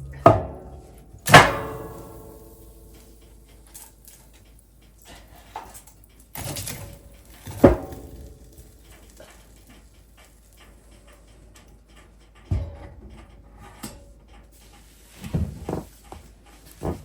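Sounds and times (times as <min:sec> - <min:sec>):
knocks and thumps: 0:00.0 - 0:02.2, 0:12.5 - 0:13.4, 0:15.2 - 0:17.0.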